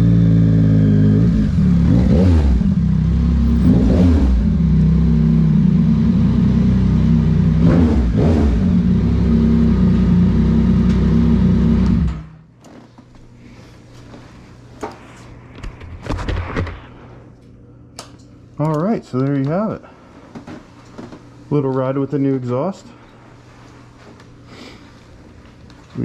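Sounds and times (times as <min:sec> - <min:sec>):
motorcycle engine running loud: 0:00.0 - 0:12.2.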